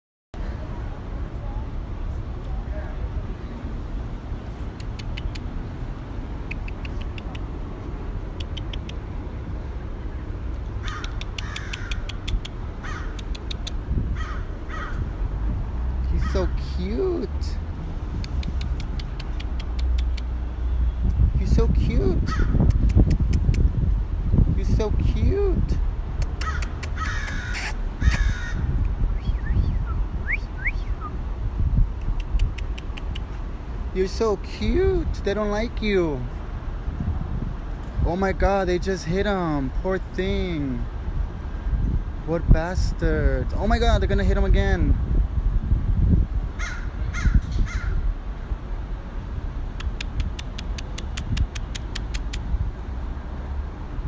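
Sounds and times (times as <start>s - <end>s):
crows clicking: 4.7s - 5.5s, 6.4s - 7.5s, 8.3s - 9.0s, 10.8s - 15.1s, 18.3s - 20.3s, 26.2s - 28.6s, 32.0s - 33.4s, 49.8s - 52.4s
crows cawing: 10.8s - 12.1s, 12.8s - 13.2s, 14.1s - 15.1s, 26.4s - 28.7s, 46.6s - 48.0s.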